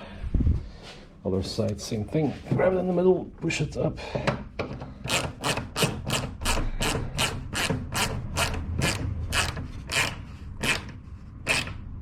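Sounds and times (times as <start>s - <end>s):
plastic nut ratcheting: 5.1s - 11.8s.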